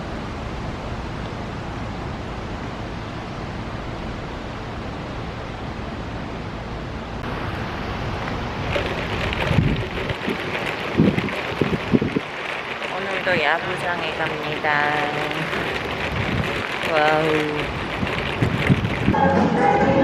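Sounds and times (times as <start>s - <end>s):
wind buffeting microphone: 7.2s - 19.2s.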